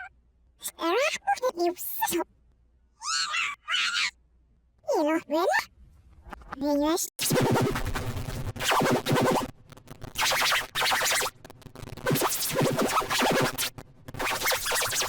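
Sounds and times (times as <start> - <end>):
pitch-warped electronic sound bursts: 7.2 - 15.0.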